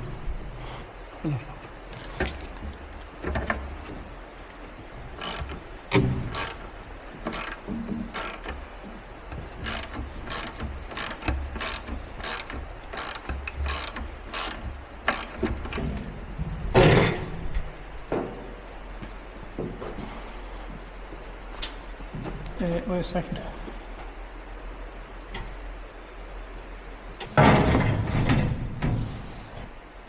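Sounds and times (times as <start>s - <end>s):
ratchet wrench clicking: 5.2s - 8.6s, 9.5s - 15.8s.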